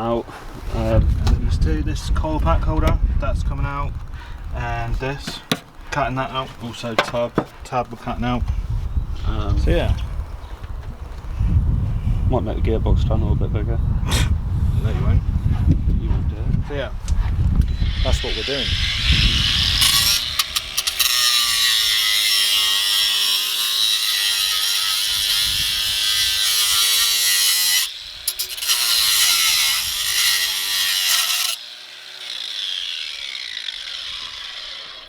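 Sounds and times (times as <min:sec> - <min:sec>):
power tool cutting sheet steel: 0:17.6 - 0:35.0.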